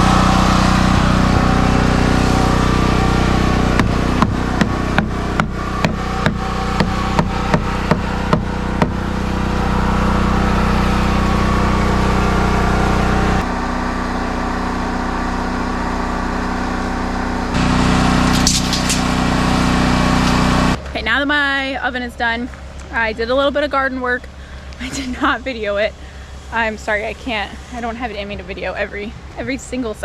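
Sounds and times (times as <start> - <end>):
small engine running: 0.0 - 20.9, 22.5 - 29.7
sharp knocks: 3.8 - 9.0.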